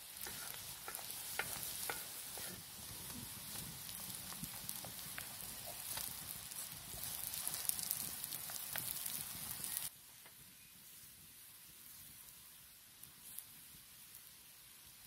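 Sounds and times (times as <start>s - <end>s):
hot oil sizzling in a pan: 0.0s - 10.0s, 10.6s - 15.0s
spoon scraping a bowl: 0.2s - 2.6s.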